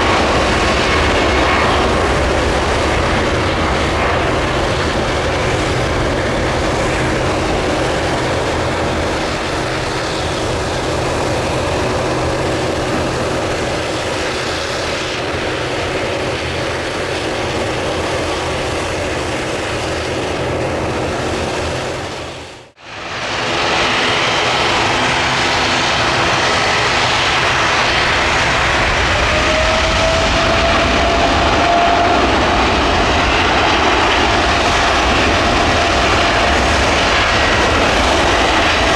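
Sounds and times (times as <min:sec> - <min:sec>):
jet engines of departing airliner: 0:00.0 - 0:38.9.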